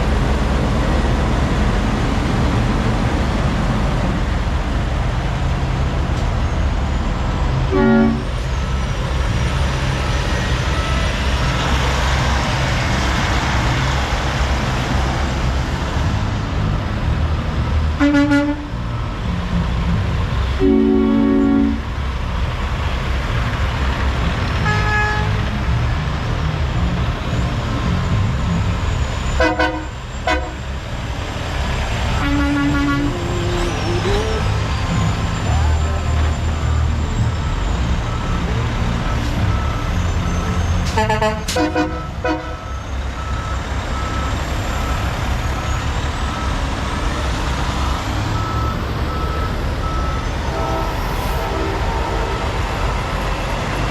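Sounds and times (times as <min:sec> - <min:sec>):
diesel truck engine rumbling: 0:00.0 - 0:53.9
truck horn toots: 0:07.7 - 0:08.4, 0:18.0 - 0:18.8, 0:20.6 - 0:21.9, 0:24.6 - 0:25.4, 0:29.3 - 0:30.7, 0:32.1 - 0:34.6, 0:40.2 - 0:42.8, 0:50.4 - 0:52.9.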